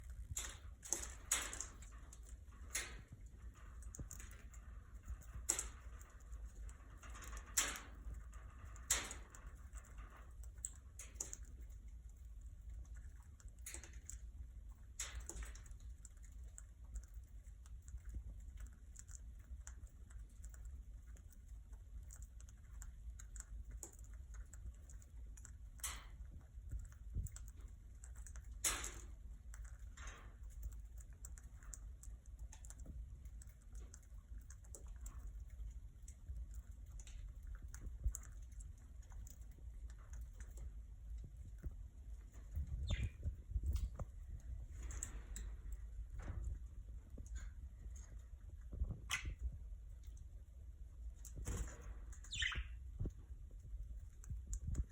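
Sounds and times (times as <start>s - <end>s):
low steady hum: 0.0s - 54.9s.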